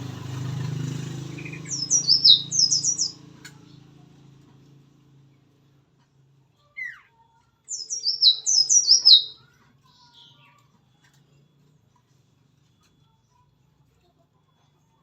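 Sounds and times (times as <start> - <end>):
bird calling falling notes: 1.2 - 3.3, 7.7 - 9.3.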